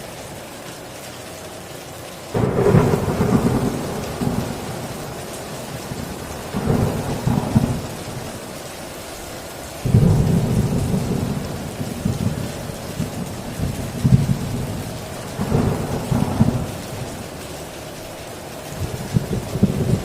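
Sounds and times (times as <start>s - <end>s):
heavy rain on a tin roof: 0.0s - 20.0s
loud low thunder rumbles: 2.4s - 8.6s, 9.8s - 17.4s, 18.7s - 20.0s.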